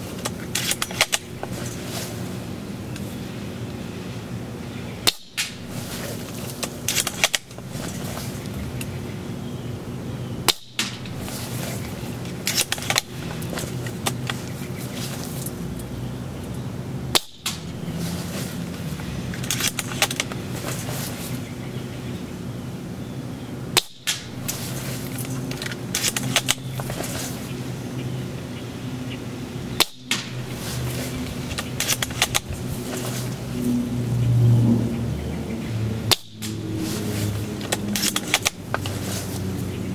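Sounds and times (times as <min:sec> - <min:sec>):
steady low hum: 0:00.0 - 0:39.9
airsoft rifle shots: 0:05.0 - 0:06.0, 0:10.5 - 0:11.6, 0:17.1 - 0:18.0, 0:23.8 - 0:24.8, 0:36.1 - 0:36.6.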